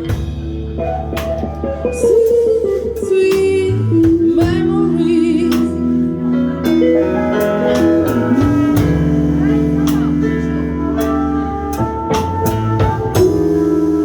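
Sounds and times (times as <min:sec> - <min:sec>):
live jazz band playing: 0:00.0 - 0:14.0
cymbal and drum strokes: 0:06.6 - 0:14.0.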